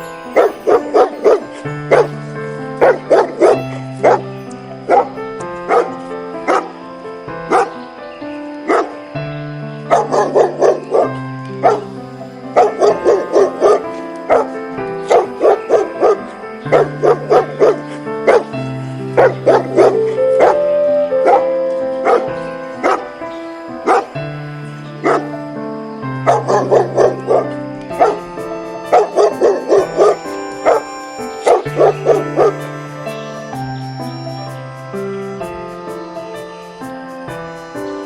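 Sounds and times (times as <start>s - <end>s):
dog barking: 0.3s - 2.2s, 2.8s - 4.3s, 4.9s - 6.8s, 7.5s - 7.8s, 8.7s - 9.0s, 9.9s - 24.2s, 25.0s - 25.4s, 26.2s - 32.7s.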